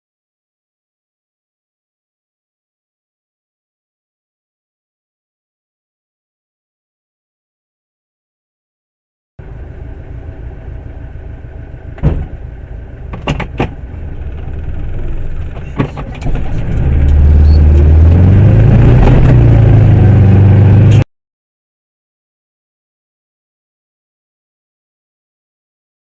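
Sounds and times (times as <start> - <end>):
motor vehicle running: 9.4 - 21.1
very loud low rumble: 9.4 - 21.1.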